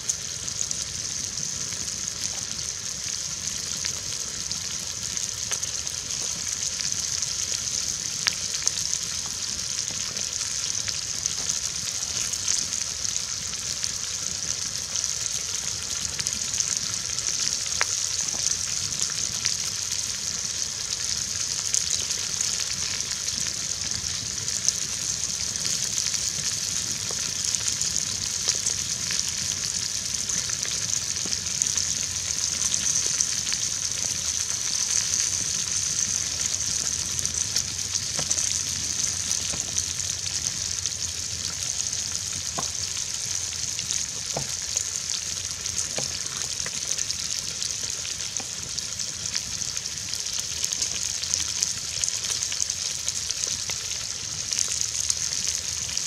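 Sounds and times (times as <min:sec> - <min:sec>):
vegetables sizzling in a pot: 0:00.0 - 0:56.0.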